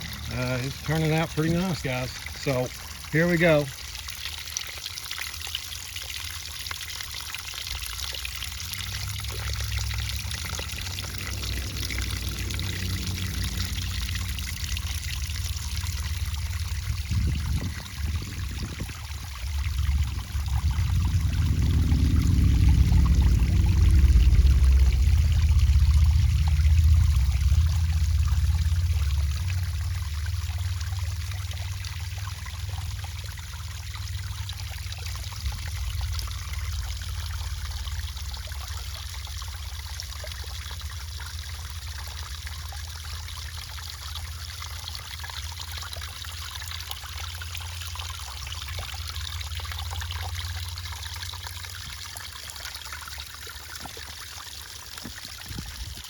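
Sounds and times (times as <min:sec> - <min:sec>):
water trickling and splashing: 0:00.0 - 0:56.0
low rumble: 0:08.0 - 0:52.2.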